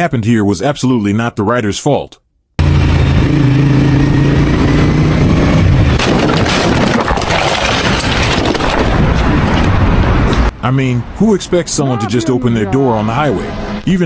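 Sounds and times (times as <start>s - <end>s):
motorcycle engine running: 2.6s - 6.0s
wind and road noise: 2.6s - 14.0s.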